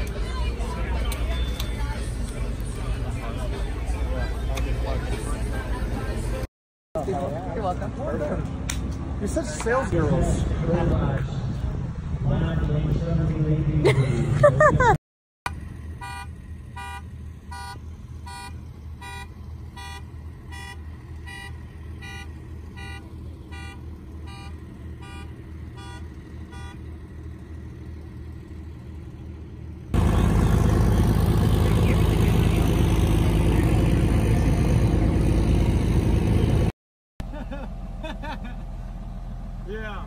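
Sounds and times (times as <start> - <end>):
vehicle engine running: 0.0 - 13.8, 15.5 - 40.0
loud engine noise: 15.5 - 40.0.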